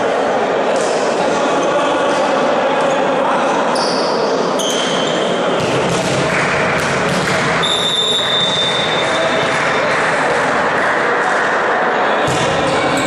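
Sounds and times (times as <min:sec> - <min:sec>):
voices echoing in hall: 0:00.0 - 0:13.0
shoe squeaks: 0:03.7 - 0:05.4, 0:07.6 - 0:08.7
ball bouncing on court: 0:05.6 - 0:10.5, 0:12.2 - 0:13.0.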